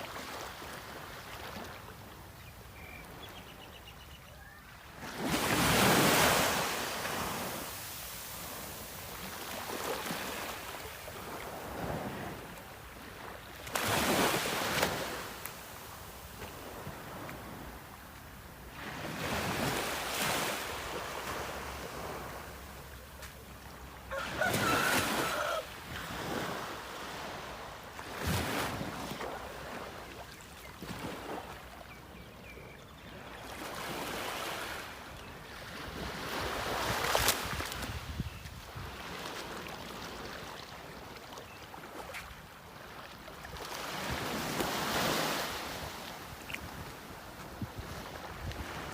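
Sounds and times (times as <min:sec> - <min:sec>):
sea waves washing onto shore: 0:04.9 - 0:23.5, 0:24.1 - 0:30.2
wind on microphone: 0:36.5 - 0:39.0.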